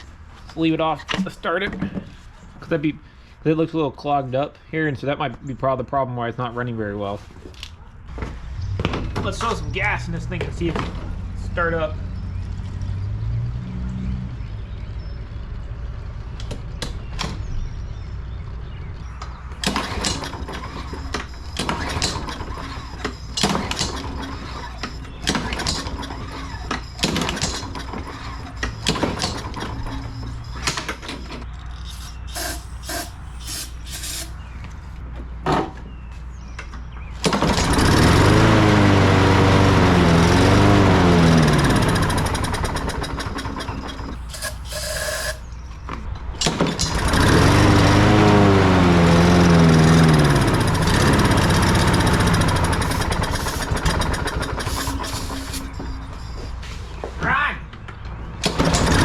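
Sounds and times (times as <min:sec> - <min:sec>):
lawn mower handling clatter: 0:19.6 - 0:34.4, 0:37.2 - 0:45.4, 0:46.4 - 0:55.8, 0:58.4 - 0:59.0
lawn mower engine surging: 0:19.6 - 0:34.6, 0:37.2 - 0:45.5, 0:46.7 - 0:56.4, 0:58.4 - 0:59.0.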